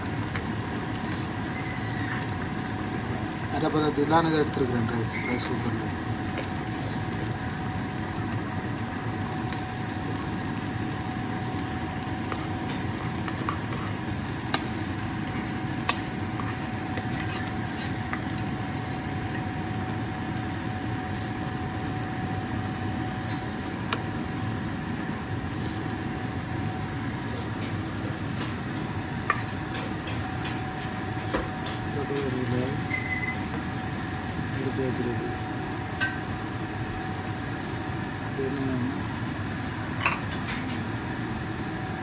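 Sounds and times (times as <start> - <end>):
steady background hum: 0.0 - 42.0
metal spoon scraping a pot: 12.3 - 19.1, 29.3 - 30.3, 36.0 - 36.5.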